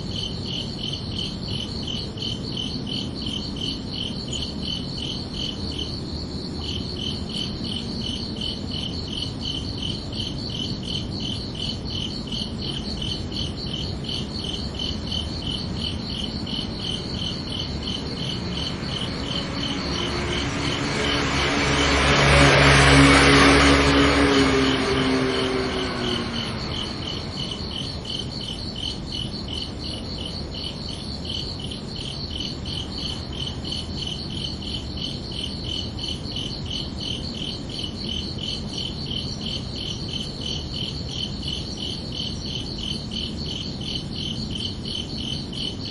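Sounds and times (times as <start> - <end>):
crickets chirping: 0.0 - 45.9
vehicle passing by: 16.5 - 29.9.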